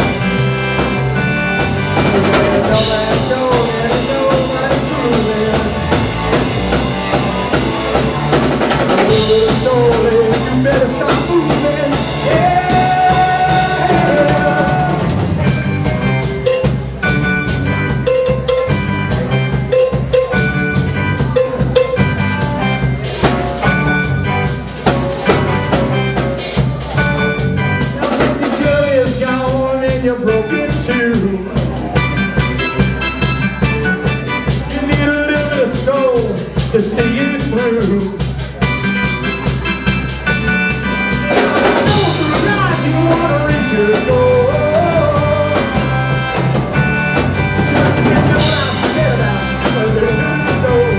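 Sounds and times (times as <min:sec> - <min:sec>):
live rock band playing: 0:00.0 - 0:50.9
lead singer singing: 0:01.6 - 0:07.2, 0:08.8 - 0:15.6, 0:27.9 - 0:32.1, 0:34.0 - 0:38.7, 0:40.9 - 0:50.9.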